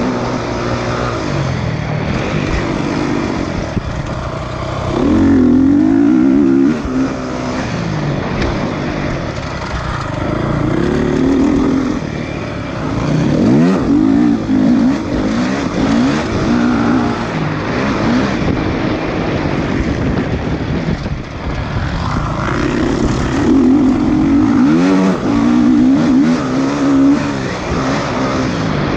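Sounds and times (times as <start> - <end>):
motorcycle engines revving: 0.0 - 28.9.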